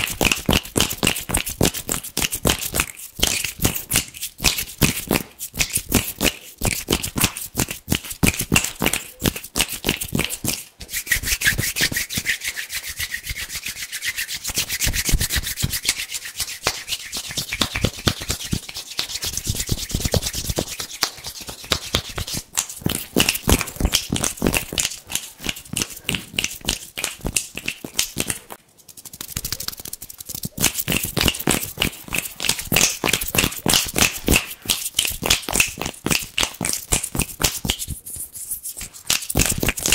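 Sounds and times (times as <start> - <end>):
hands rubbing together: 0.0 - 39.9.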